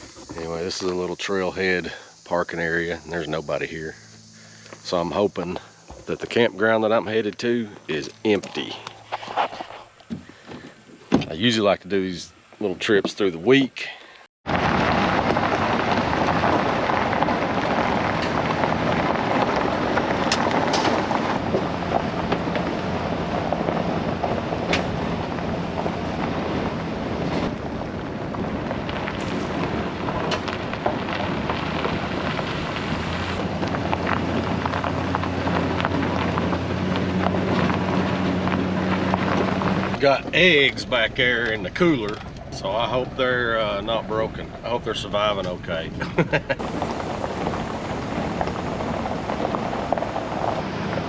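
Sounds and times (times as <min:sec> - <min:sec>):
engine drone: 0:00.0 - 0:13.4, 0:14.5 - 0:51.0
tyres rumbling on gravel: 0:00.0 - 0:51.0
knocks and rattles: 0:33.1 - 0:43.3.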